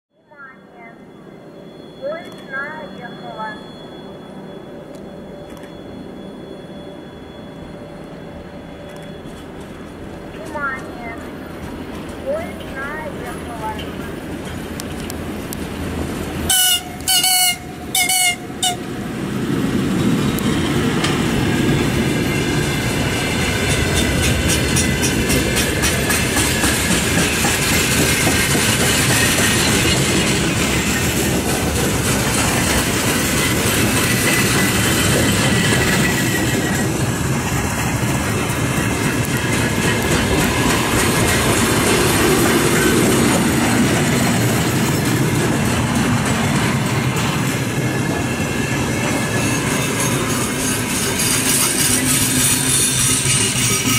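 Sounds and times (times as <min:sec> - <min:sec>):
freight train rumbling past: 0:00.4 - 0:53.9
wheels clacking over rail joints: 0:11.6 - 0:18.8, 0:19.5 - 0:53.9
locomotive horn blasts: 0:16.5 - 0:18.9.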